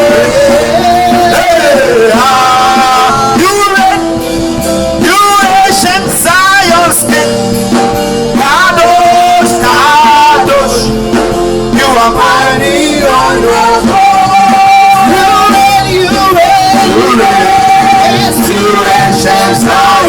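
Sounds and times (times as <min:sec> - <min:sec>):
voices singing: 0:00.0 - 0:07.3, 0:08.3 - 0:20.0
sustained keyboard chords: 0:00.0 - 0:20.0.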